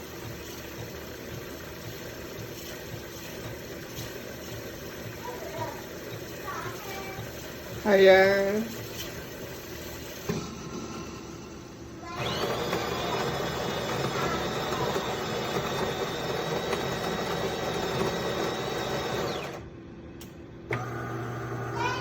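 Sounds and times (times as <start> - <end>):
coffee grinder grinding beans: 12.1 - 19.6.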